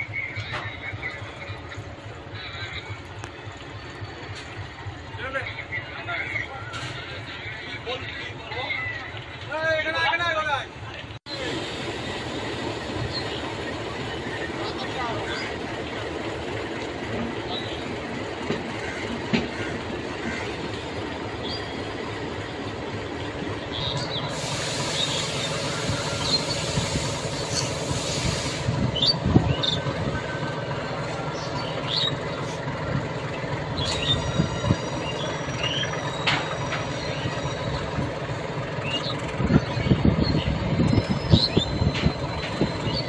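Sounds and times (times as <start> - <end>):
train rumbling: 0.0 - 43.0
hiss: 11.3 - 13.8, 24.2 - 28.8
high wheel squeals: 23.8 - 32.4, 33.6 - 43.0.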